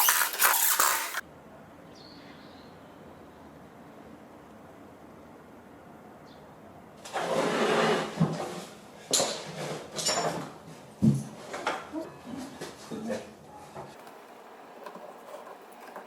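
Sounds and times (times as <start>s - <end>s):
scraping across wood: 7.0s - 8.8s.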